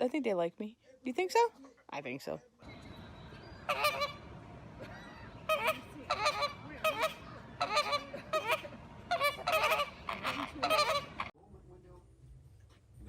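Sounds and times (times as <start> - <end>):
birds honking: 2.6 - 11.3.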